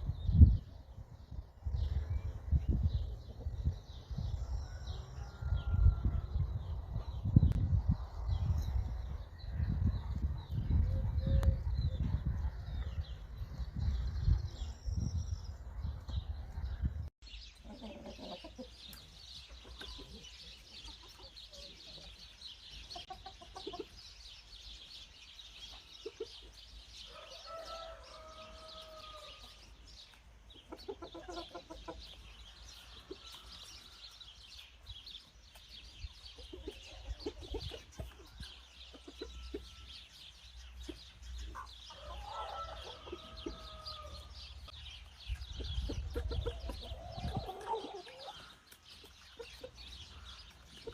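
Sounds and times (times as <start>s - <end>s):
chickens clucking: 2.3s - 4.3s, 17.4s - 24.5s, 25.5s - 50.9s.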